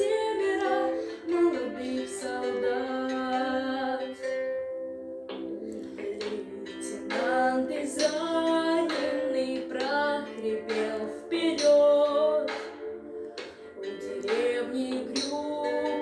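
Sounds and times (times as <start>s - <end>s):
girls choir singing: 0.0s - 4.6s, 5.3s - 16.0s.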